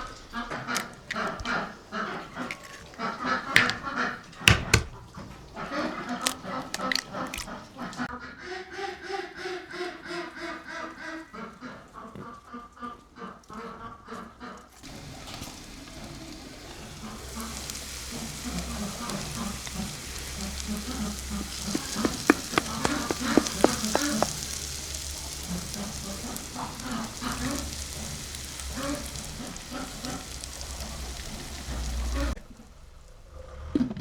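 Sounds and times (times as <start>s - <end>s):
food sizzling in a pan: 0.0s - 8.1s, 14.8s - 32.4s.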